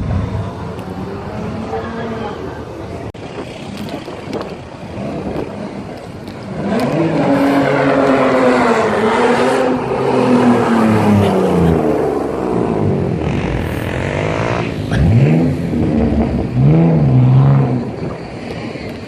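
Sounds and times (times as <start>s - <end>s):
other cars running: 0.0s - 19.0s
car engine revving: 4.1s - 19.0s.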